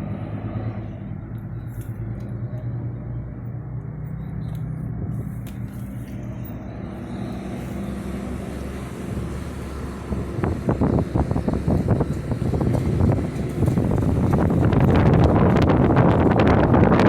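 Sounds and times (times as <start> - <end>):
low engine-like hum: 0.0 - 17.0
wind buffeting microphone: 4.8 - 17.0.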